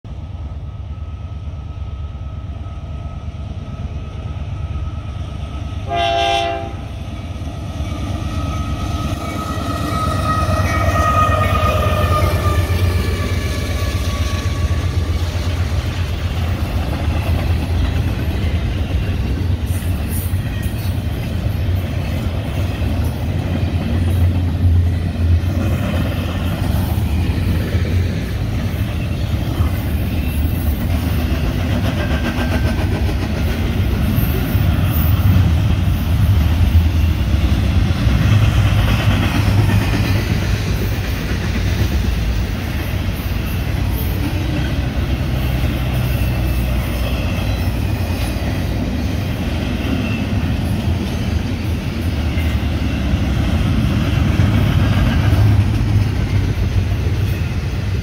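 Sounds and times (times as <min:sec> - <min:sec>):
freight train wheels on rail: 0:00.0 - 0:58.0.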